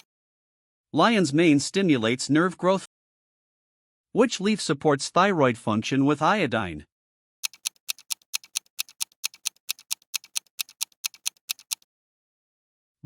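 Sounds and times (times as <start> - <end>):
clock ticking rapidly: 7.4 - 11.8.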